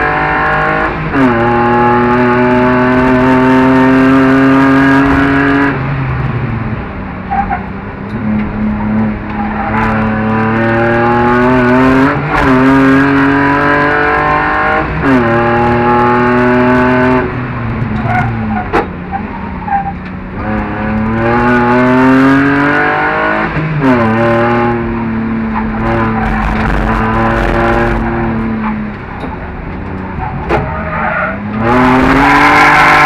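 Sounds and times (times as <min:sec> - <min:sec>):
car engine at full throttle: 0:00.0 - 0:33.0.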